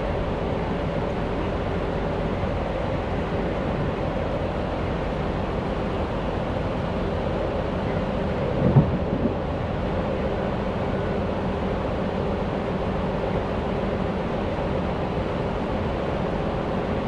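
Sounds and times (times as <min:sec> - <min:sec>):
train wheels rumbling: 0:00.0 - 0:17.0
short low thump: 0:08.6 - 0:09.4.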